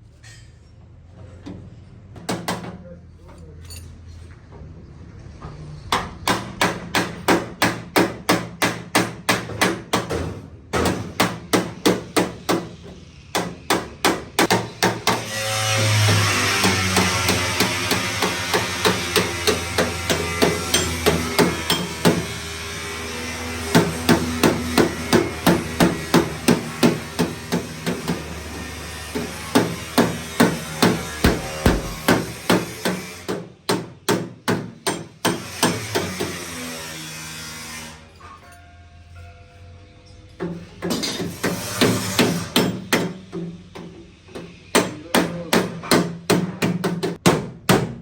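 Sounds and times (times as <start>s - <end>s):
hammer beating sheet metal: 5.9s - 22.4s, 23.5s - 36.7s, 40.5s - 48.0s.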